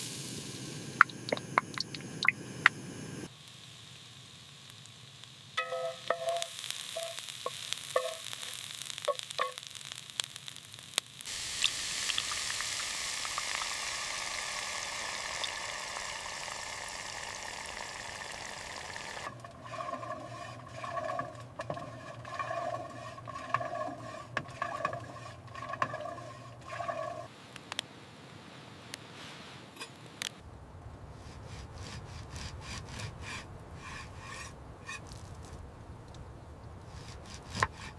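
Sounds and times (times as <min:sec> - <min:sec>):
food sizzling in a pan: 0:00.0 - 0:20.8
scraping while stirring food: 0:05.6 - 0:08.5, 0:19.4 - 0:27.3.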